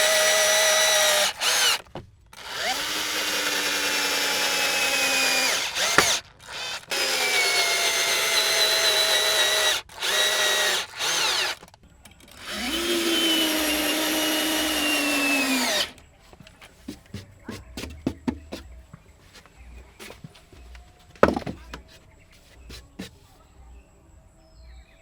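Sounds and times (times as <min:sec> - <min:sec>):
electric drill whining: 0:00.0 - 0:11.7, 0:12.3 - 0:16.0.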